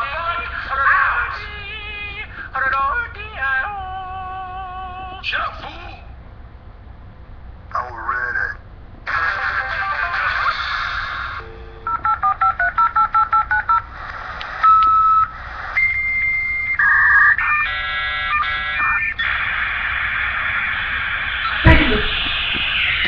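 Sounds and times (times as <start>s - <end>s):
modem hiss: 13.3s - 23.0s.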